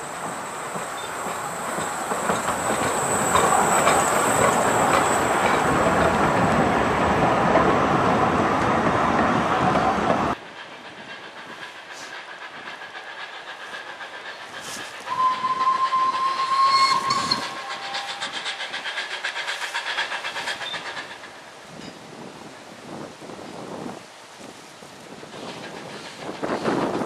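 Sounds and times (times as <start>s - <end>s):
train clattering on rails: 0.0s - 27.0s
locomotive pulsing beat: 0.1s - 7.8s
locomotive whistle blast: 15.1s - 18.2s.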